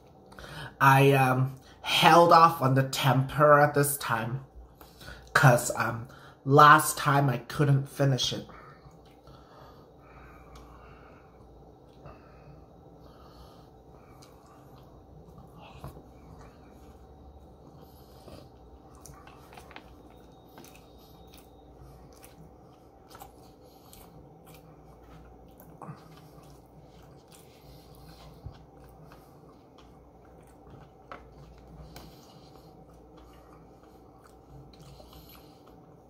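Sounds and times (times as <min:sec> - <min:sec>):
quiet chewing: 0:08.5 - 0:36.0.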